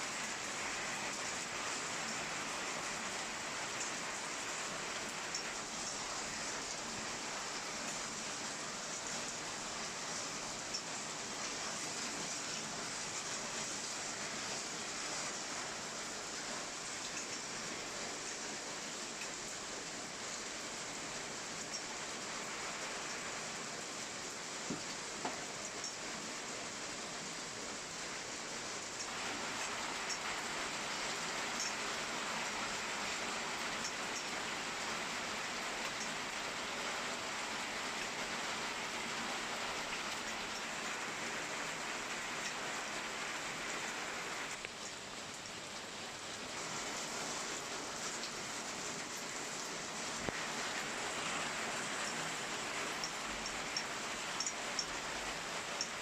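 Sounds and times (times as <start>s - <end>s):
steady rain hiss: 0.0s - 56.0s
faint raindrop ticks: 3.0s - 7.1s, 8.9s - 13.9s, 17.0s - 23.4s, 24.3s - 27.0s, 28.7s - 36.7s, 37.7s - 45.6s, 48.0s - 56.0s
raindrop ticks: 17.0s - 17.5s, 24.6s - 26.0s, 31.4s - 31.8s, 33.5s - 35.1s, 35.7s - 36.3s, 50.2s - 56.0s.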